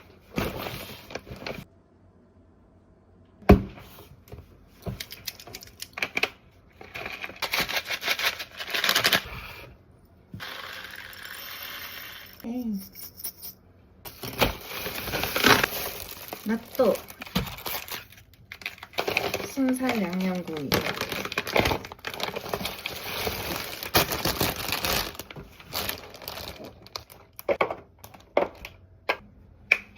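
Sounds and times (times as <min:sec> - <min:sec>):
packaging crinkling: 0:14.1 - 0:28.3.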